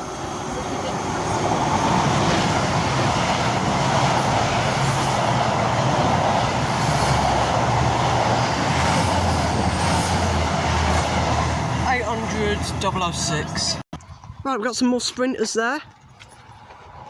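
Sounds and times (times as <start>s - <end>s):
train wheels rumbling on rail: 0.0s - 13.8s.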